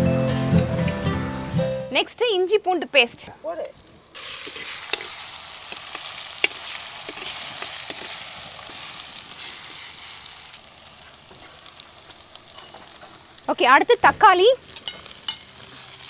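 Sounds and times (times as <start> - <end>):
food sizzling in hot oil: 3.8 - 16.0.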